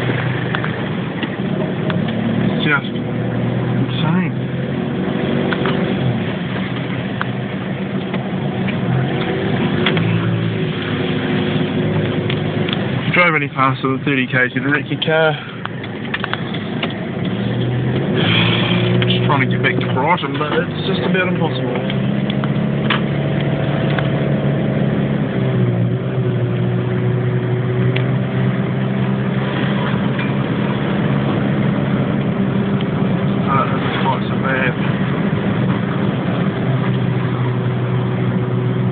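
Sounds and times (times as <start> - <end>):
car engine hum: 0.0 - 38.9
tyre and road noise: 0.0 - 38.9
car knocks and rattles: 15.5 - 24.2.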